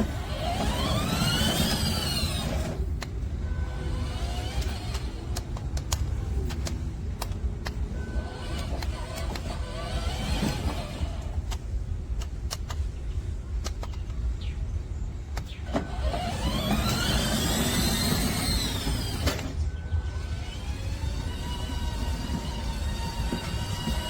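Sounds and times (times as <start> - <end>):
electric motors whining: 0.0 - 11.7, 15.4 - 24.0
sharp clicks: 4.4 - 14.6, 15.2 - 19.6.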